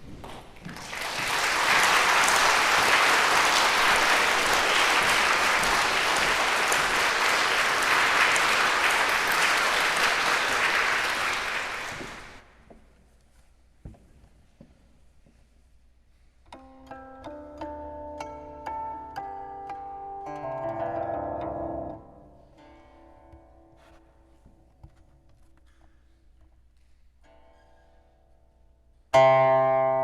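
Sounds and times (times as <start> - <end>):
audience applauding: 0.3 - 12.5.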